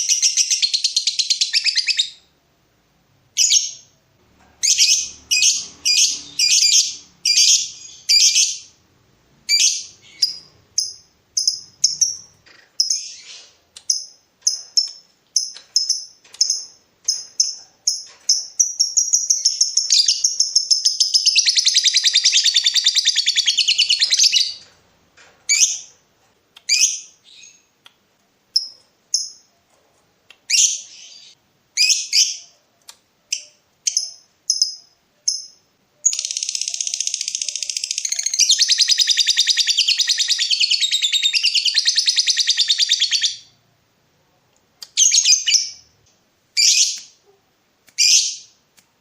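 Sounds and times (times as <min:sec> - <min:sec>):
lovebird chirping and trilling: 0:00.0 - 0:02.3, 0:03.4 - 0:03.9, 0:04.6 - 0:08.7, 0:09.5 - 0:24.7, 0:25.5 - 0:25.9, 0:26.7 - 0:27.6, 0:30.5 - 0:32.6, 0:33.3 - 0:43.6, 0:45.0 - 0:46.0, 0:46.6 - 0:47.2, 0:48.0 - 0:48.5.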